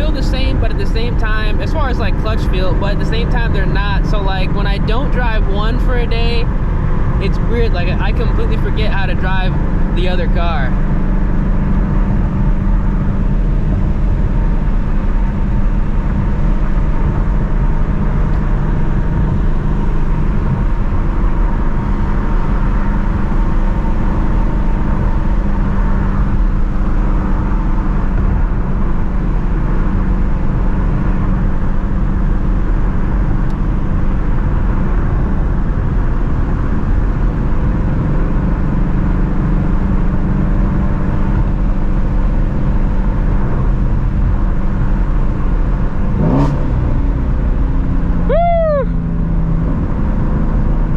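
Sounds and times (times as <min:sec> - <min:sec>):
car engine running steadily: 0:00.0 - 0:50.9.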